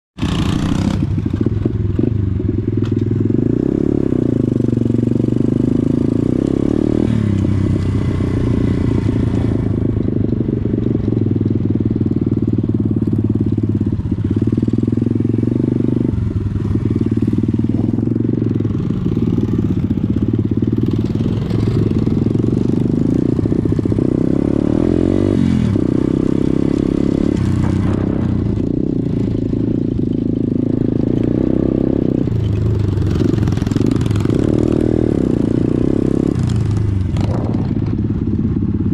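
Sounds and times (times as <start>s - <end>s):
motorcycle engine revving: 0.2s - 38.9s.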